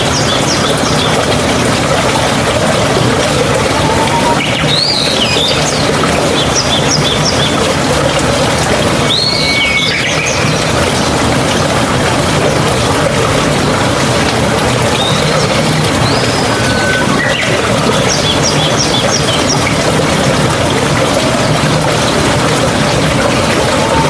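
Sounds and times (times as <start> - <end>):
stream water flowing: 0.0 - 24.0
birds calling: 9.0 - 11.2, 14.9 - 20.3.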